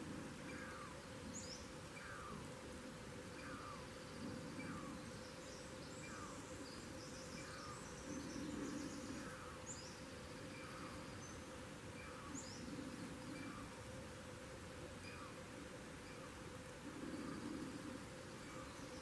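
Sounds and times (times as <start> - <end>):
birds chirping: 3.2 - 13.8, 15.0 - 19.0.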